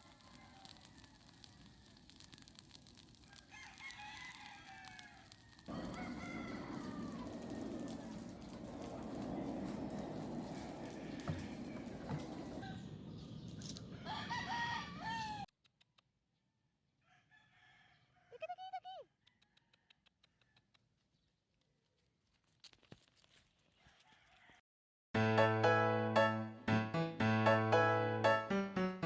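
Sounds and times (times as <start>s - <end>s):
rooster crowing: 0.0s - 2.2s, 3.2s - 12.9s, 13.9s - 15.5s, 17.0s - 18.5s, 19.2s - 20.6s, 23.8s - 24.6s
music: 25.2s - 29.0s.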